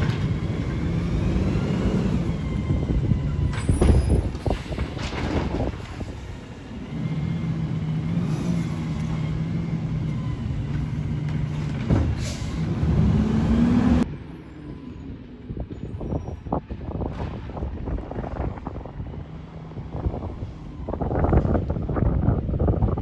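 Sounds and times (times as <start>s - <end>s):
garbage truck engine running: 0.0s - 14.0s.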